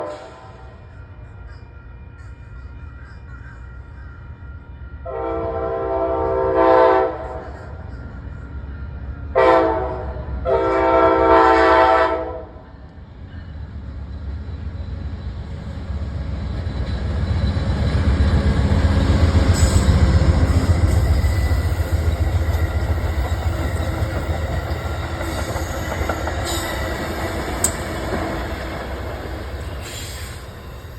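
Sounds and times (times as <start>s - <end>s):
train horn blasts: 0.0s - 0.9s, 4.9s - 7.6s, 9.3s - 12.8s
train rumbling past: 0.0s - 30.9s.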